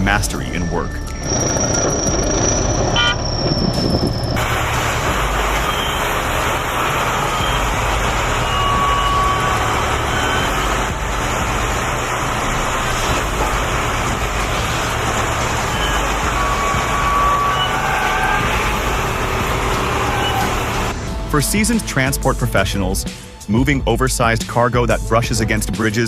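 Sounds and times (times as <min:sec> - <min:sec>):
vehicle engine and road noise: 0:00.0 - 0:21.4.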